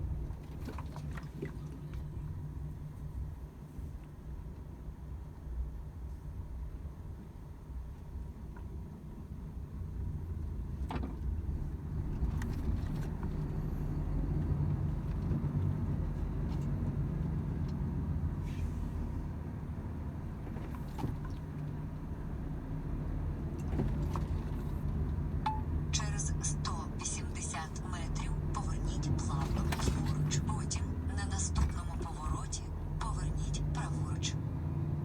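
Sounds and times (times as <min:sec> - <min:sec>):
road noise: 0:09.3 - 0:35.0
truck engine drone: 0:11.5 - 0:35.0.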